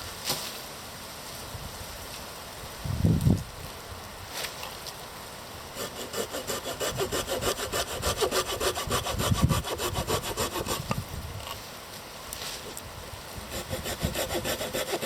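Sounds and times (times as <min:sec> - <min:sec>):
hand saw cutting wood: 0:05.8 - 0:11.0, 0:13.4 - 0:15.0.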